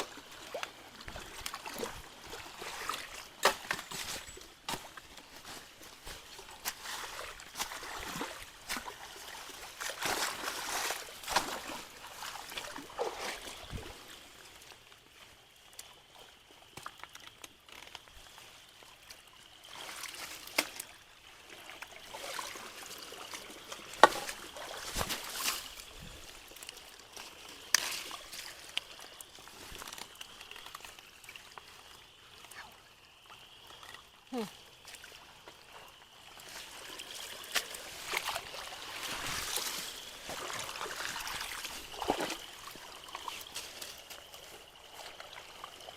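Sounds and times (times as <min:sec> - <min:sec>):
creek water trickling and splashing: 0:00.0 - 0:45.9
sticks cracking and knocking: 0:03.4 - 0:04.9, 0:24.0 - 0:25.7.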